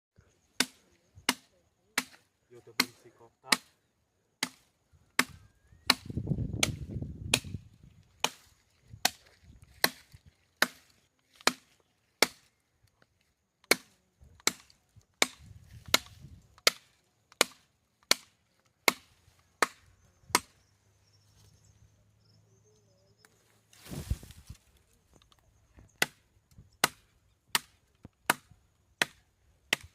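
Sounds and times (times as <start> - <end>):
wood being chopped: 0.6 - 3.7, 4.4 - 12.5, 13.6 - 20.6, 25.8 - 26.2, 26.8 - 29.9.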